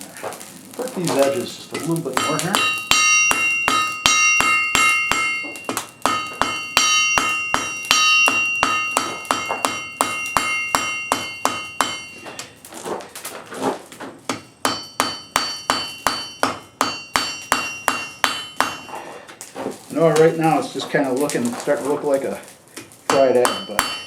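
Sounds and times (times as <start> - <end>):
hammer striking iron on anvil: 1.8 - 12.5, 14.3 - 19.1, 23.1 - 24.0.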